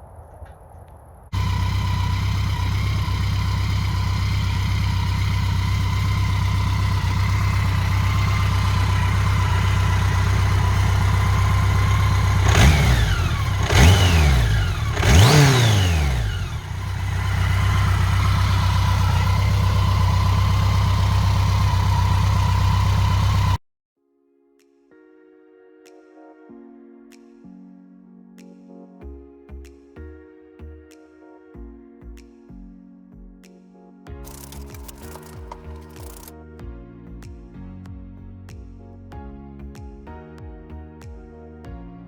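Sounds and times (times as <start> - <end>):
motorcycle engine idling and revving: 1.4 - 23.6, 34.3 - 36.3.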